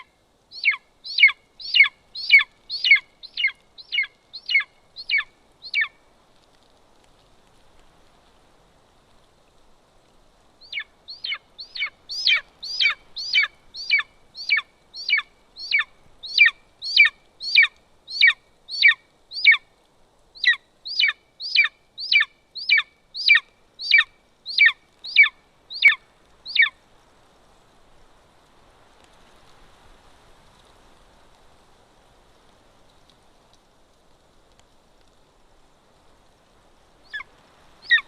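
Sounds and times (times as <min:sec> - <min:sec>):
eagle yelping calls: 0:00.0 - 0:06.0, 0:10.6 - 0:19.6, 0:20.4 - 0:26.7, 0:37.0 - 0:38.0.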